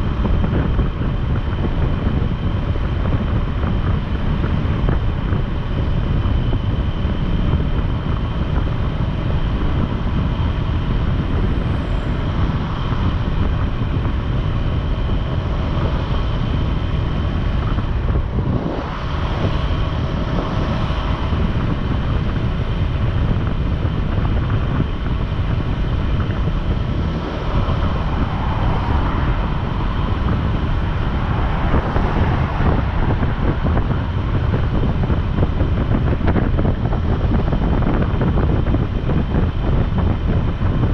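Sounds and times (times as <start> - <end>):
motorcycle engine hum: 0.0 - 40.9
road noise: 0.0 - 40.9
wind on microphone: 0.0 - 40.9.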